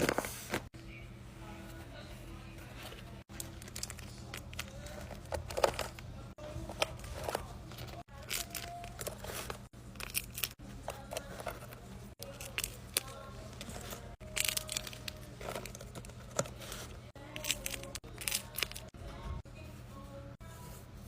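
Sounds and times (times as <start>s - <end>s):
paper crinkling and tearing: 12.2s - 18.9s.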